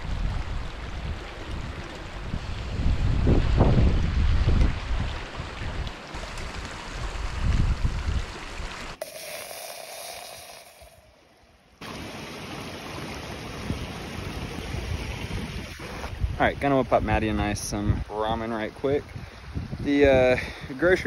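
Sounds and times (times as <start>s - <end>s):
wind buffeting microphone: 0.0s - 8.8s, 13.6s - 18.2s, 18.9s - 21.0s.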